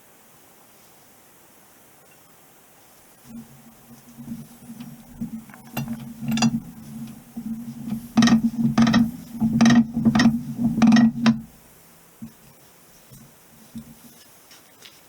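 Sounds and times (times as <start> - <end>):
steady low hum: 3.2 - 14.2.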